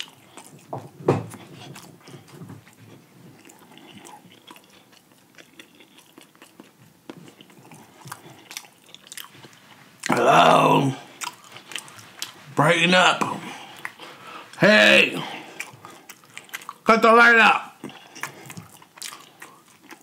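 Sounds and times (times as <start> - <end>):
chewing with wet mouth clicks: 0.0 - 10.1, 11.1 - 12.4, 15.4 - 16.9, 17.8 - 20.0.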